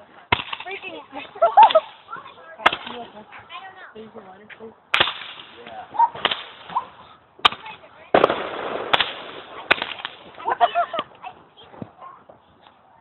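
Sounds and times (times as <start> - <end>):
fireworks crackling: 0.3 - 3.4, 4.9 - 12.4
fireworks bangs: 4.9 - 11.9.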